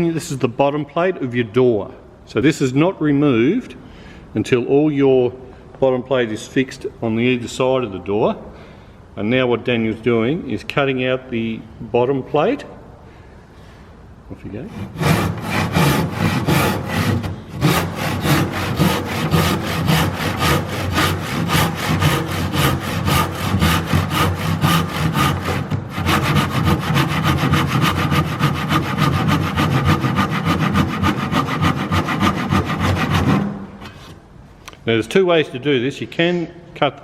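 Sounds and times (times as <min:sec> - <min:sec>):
handsaw cutting wood: 0:14.7 - 0:33.9.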